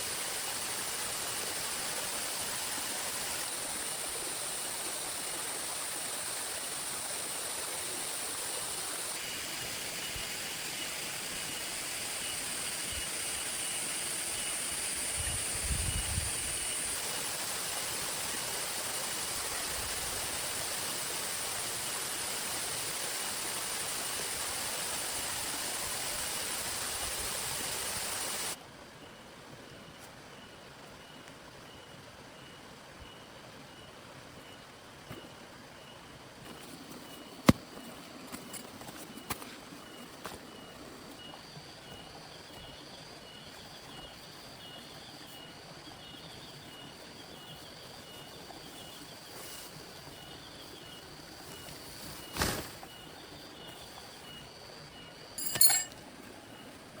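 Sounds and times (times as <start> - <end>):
heavy rain and falling water: 0.0 - 28.6.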